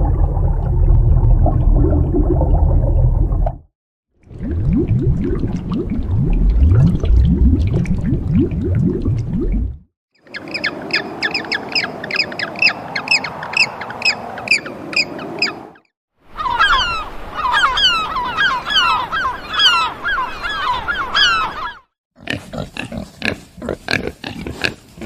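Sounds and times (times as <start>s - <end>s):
birds chirping: 10.2s - 21.8s.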